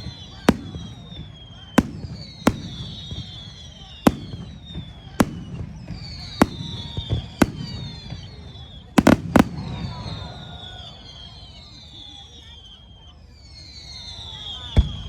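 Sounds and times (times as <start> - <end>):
fireworks bursting with bangs: 0.0 - 10.9.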